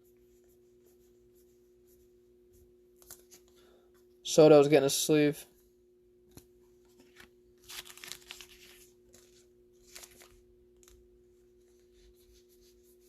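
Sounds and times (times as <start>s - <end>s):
plastic sleeves rustling and sliding: 6.3s - 13.0s.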